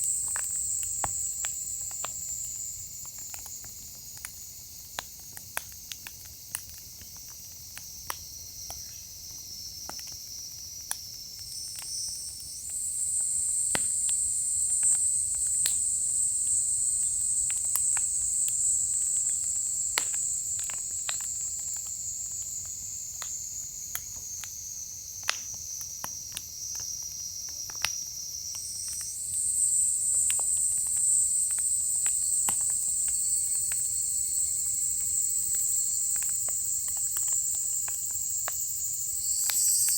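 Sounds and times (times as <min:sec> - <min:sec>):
insect chorus: 0:00.0 - 0:39.9
firewood crackling: 0:28.6 - 0:39.9.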